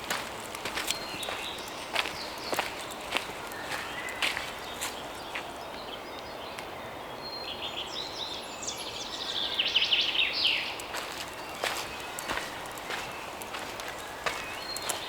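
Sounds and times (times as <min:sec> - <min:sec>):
footsteps on dry leaves: 0:00.0 - 0:05.6, 0:10.6 - 0:15.0
songbird singing: 0:00.0 - 0:15.0.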